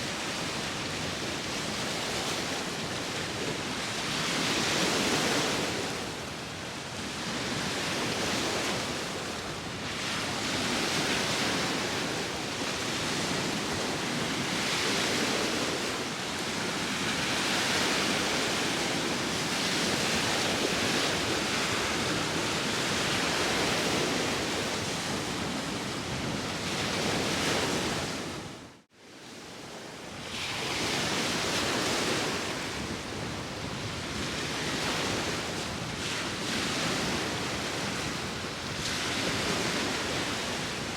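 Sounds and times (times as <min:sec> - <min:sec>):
wind: 0:00.0 - 0:40.9.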